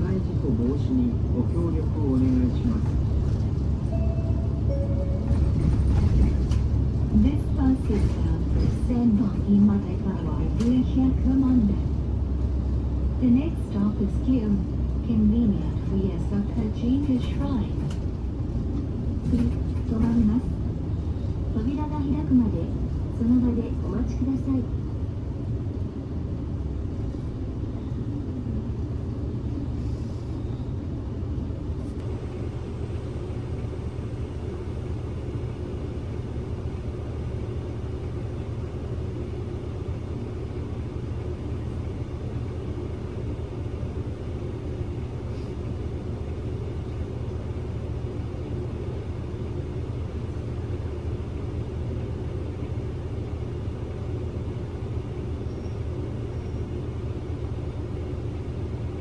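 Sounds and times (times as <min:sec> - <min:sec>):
bus engine rumble from inside: 0:00.0 - 0:59.0.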